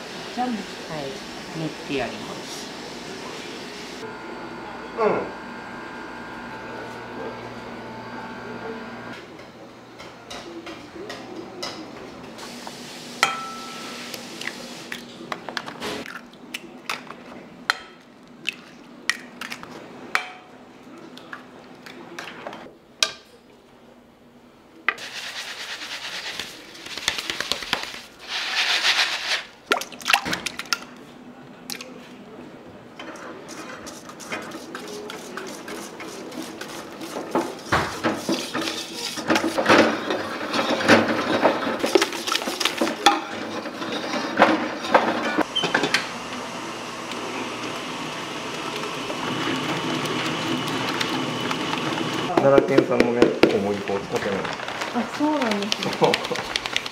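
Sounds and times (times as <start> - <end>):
utensils and dishes clinking: 13.2 - 16.2, 33.0 - 46.2.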